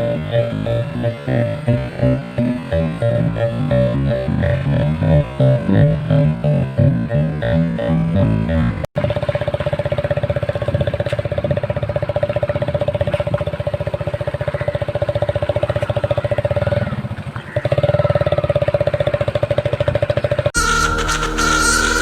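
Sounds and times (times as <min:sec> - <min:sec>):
motorcycle engine running: 0:07.8 - 0:22.0.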